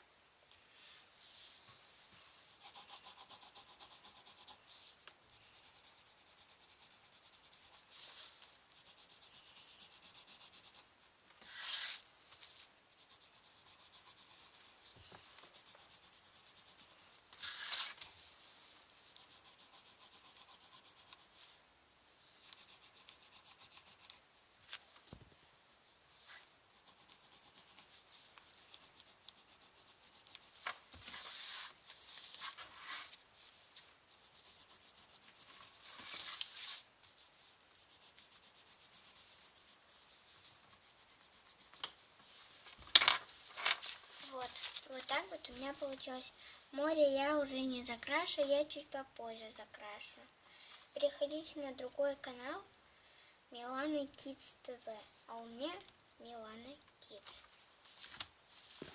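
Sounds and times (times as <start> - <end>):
drawing tool scratching paper: 2.5 - 18.2, 19.1 - 21.6, 22.4 - 24.3, 26.3 - 42.4.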